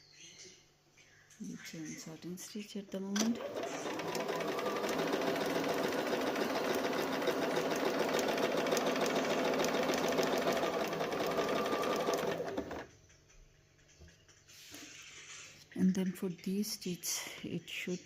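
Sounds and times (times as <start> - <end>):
sewing machine running: 3.2 - 12.9.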